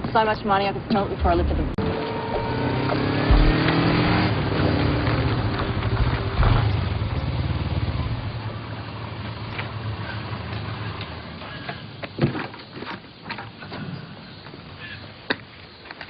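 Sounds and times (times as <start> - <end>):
vehicle engine revving and pulling away: 1.2 - 11.4.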